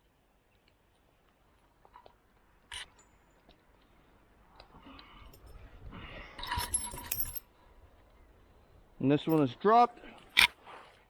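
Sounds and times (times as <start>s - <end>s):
carabiners clinking together: 6.4s - 7.5s, 9.2s - 9.5s.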